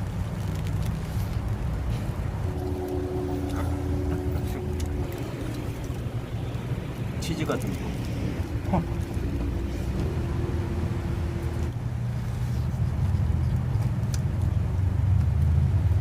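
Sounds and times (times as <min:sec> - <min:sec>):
steady hum: 0:01.1 - 0:12.3
car cabin rumble: 0:01.9 - 0:11.8.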